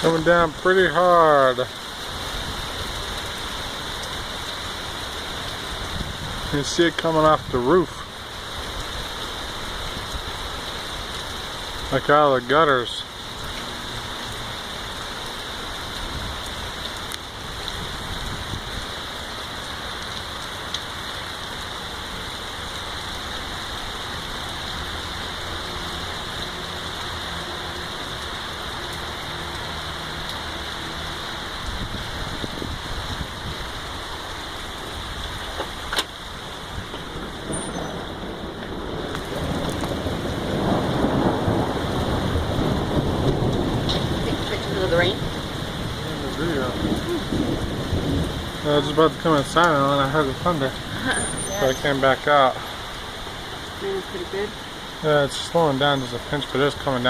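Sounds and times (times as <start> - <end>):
heavy rain pouring: 0.0 - 57.0
water streaming from gutters: 0.0 - 57.0
thunder rumbling: 35.0 - 52.8.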